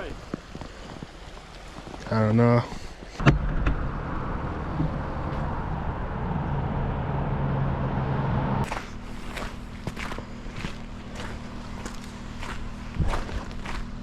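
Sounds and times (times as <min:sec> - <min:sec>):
car engine running: 0:03.4 - 0:13.0.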